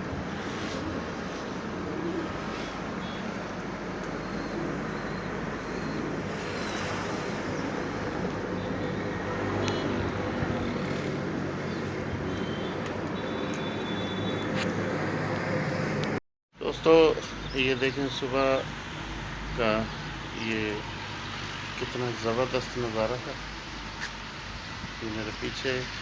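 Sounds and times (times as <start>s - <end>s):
low engine hum: 0.0s - 16.2s
road traffic hiss: 0.0s - 26.0s.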